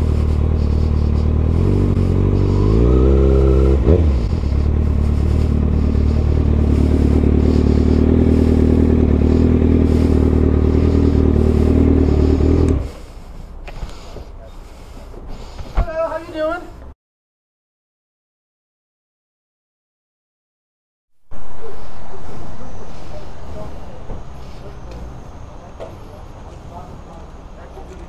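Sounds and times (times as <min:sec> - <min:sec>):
motorcycle engine revving and idling: 0:00.0 - 0:14.2, 0:21.4 - 0:28.0.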